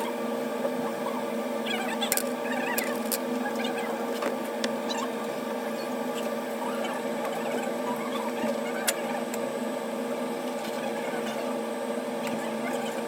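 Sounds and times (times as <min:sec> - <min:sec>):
machine hum: 0:00.0 - 0:06.6.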